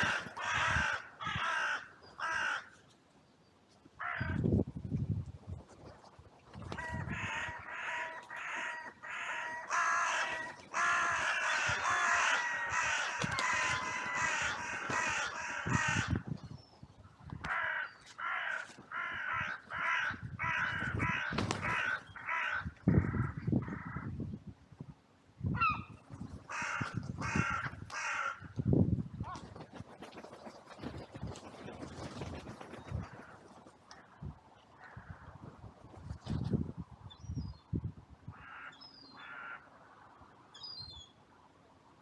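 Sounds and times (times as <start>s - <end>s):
crows cawing: 0.0s - 2.8s, 4.0s - 4.4s, 6.8s - 16.2s, 17.5s - 24.1s, 26.5s - 28.5s, 38.4s - 39.7s.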